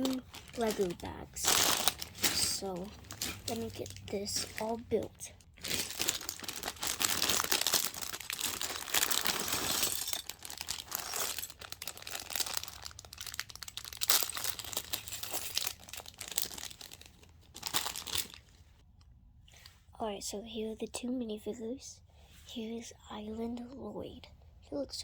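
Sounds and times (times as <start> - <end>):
plastic bags crinkling: 0.0 - 18.6.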